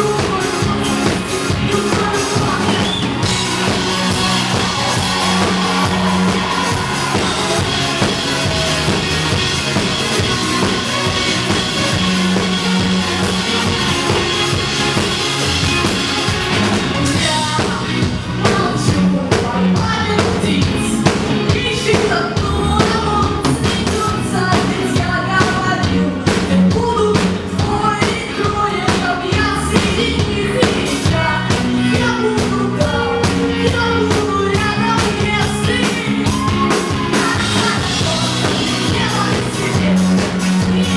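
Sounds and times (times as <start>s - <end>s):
person singing: 0.0s - 15.8s, 16.8s - 40.9s
band playing a song: 0.0s - 40.9s
drum strokes: 1.9s - 17.3s.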